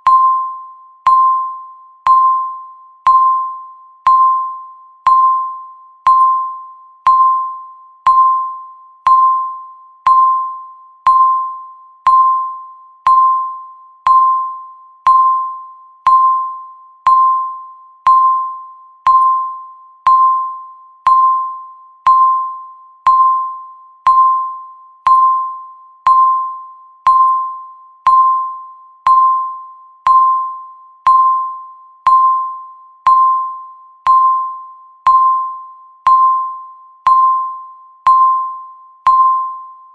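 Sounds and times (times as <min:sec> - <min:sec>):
timer ticking: 0:23.1 - 0:24.4, 0:27.1 - 0:27.5, 0:36.1 - 0:38.4, 0:39.1 - 0:39.6.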